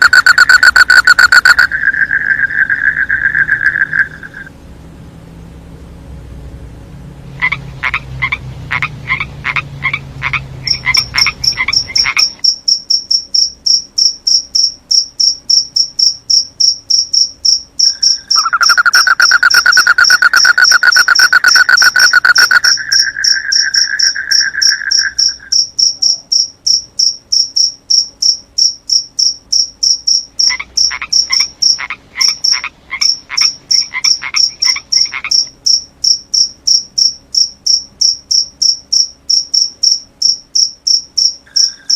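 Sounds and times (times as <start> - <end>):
cricket chirping: 0.0 - 4.5, 7.4 - 41.9
frogs calling: 0.0 - 4.5, 7.4 - 41.9
dense trill: 0.0 - 5.4, 6.0 - 12.6, 17.2 - 26.2.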